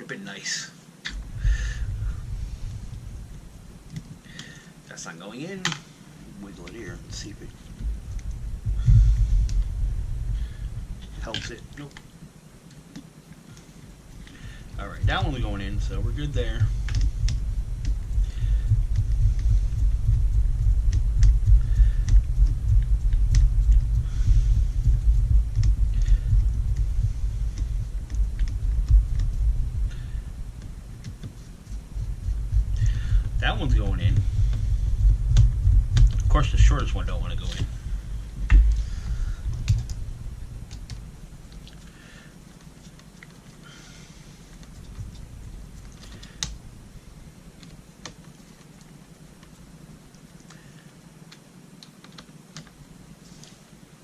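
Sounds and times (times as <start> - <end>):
steady low rumble: 0.9 - 51.8.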